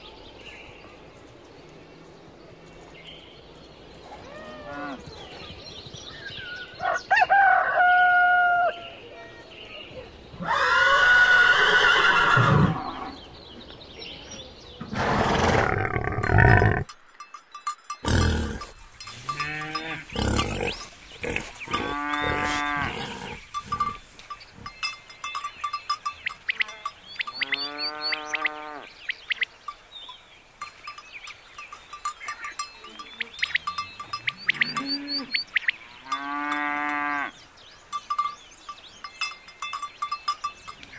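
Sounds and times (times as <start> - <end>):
farm animals calling: 4.0 - 5.5, 9.9 - 13.2, 18.0 - 29.5, 32.0 - 37.4.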